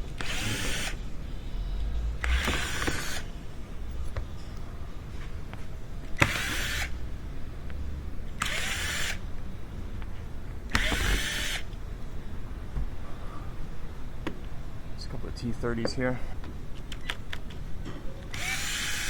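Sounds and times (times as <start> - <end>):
cordless power driver whirring: 0.0 - 1.0, 2.2 - 3.3, 6.2 - 7.0, 8.4 - 9.2, 10.7 - 11.7, 18.2 - 19.0.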